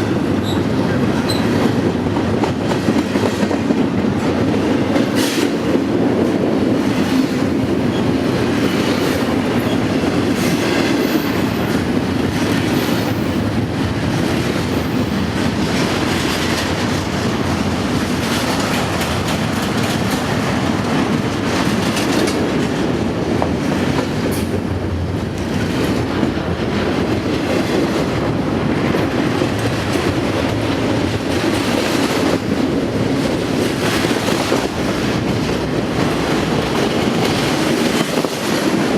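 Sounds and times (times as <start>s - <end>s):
train wheels on rails: 0.0s - 38.9s
clicks at rail joints: 21.4s - 22.8s.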